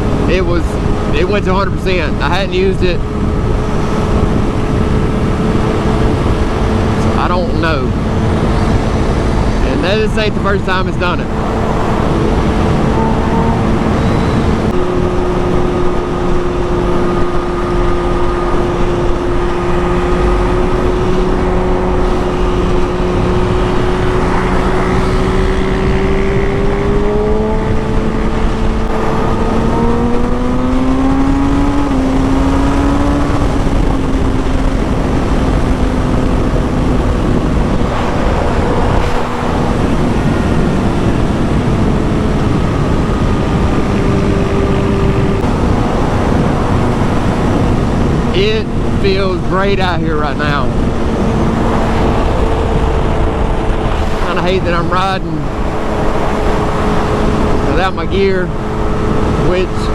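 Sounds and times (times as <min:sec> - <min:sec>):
heavy wind noise: 0:00.0 - 0:59.9
motorcycle engine cruising: 0:00.0 - 0:59.9.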